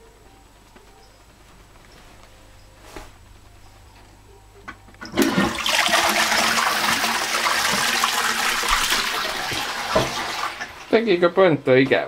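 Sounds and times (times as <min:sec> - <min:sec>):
toilet flushing water rush: 0:05.0 - 0:11.2.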